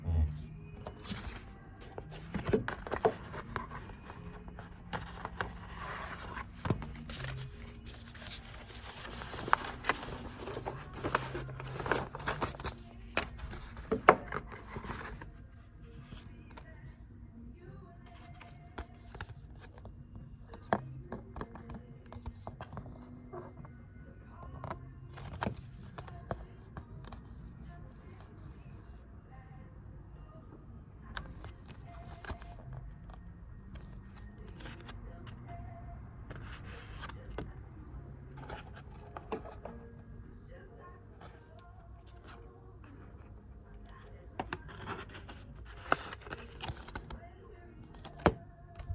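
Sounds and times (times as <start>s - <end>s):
packaging scraping: 0.9s - 15.3s.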